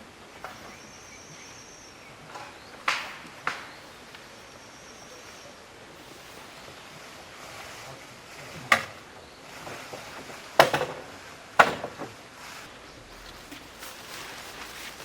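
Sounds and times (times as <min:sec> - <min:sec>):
steady outdoor hiss: 0:00.0 - 0:15.0
sharp knocks: 0:10.6 - 0:12.2.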